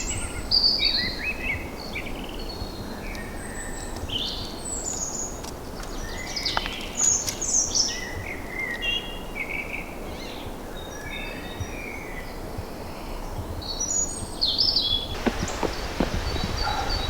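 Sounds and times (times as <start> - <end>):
songbirds singing: 14.9 - 17.0.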